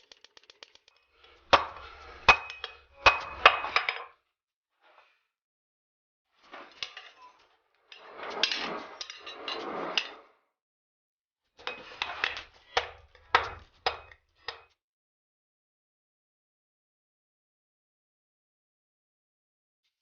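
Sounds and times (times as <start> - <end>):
metal striking metal: 1.2 - 3.9
scraping on metal: 1.2 - 3.9, 6.5 - 10.3.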